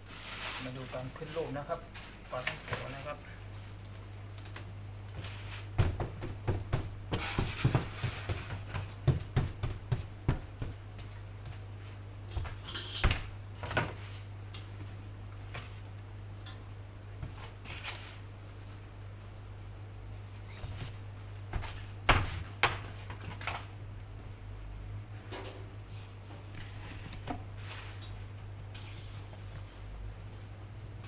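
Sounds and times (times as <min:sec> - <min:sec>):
dough taps and knocks on board: 0:05.8 - 0:11.6, 0:21.5 - 0:23.0.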